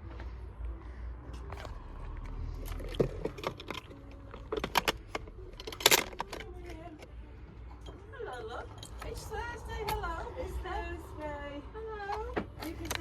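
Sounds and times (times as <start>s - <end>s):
bus rumbling in motion: 0.0s - 13.0s
clicks and rattles: 2.7s - 7.2s.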